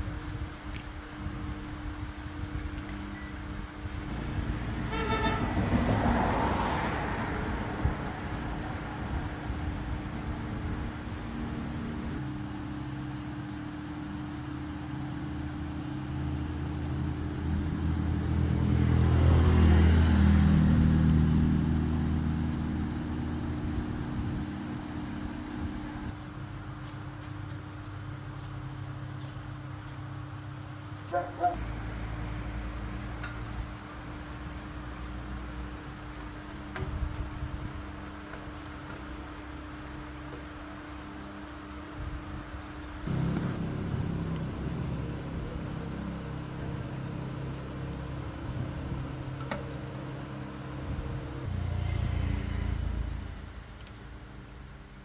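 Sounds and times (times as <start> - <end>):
road traffic passing: 3.1 - 55.0
loud engine passing: 4.1 - 12.2, 17.0 - 26.1, 43.0 - 53.8
short horn toot: 4.4 - 5.7
steady low hum: 41.2 - 51.5.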